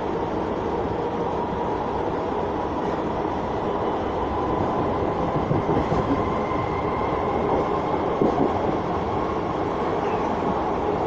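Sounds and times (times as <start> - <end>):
train wheels rumbling on rails: 0.0 - 11.0
clacks over rail joints: 7.5 - 8.8.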